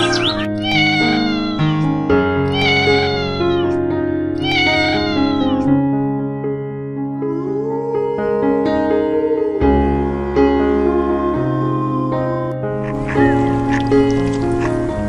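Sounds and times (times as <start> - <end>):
cat meowing: 0.0 - 3.8, 4.4 - 5.7
background music: 0.0 - 15.0.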